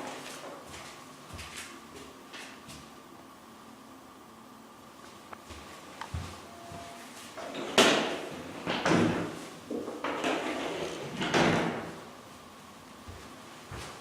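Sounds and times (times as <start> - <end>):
sliding doors banging open and shut: 7.4 - 12.0.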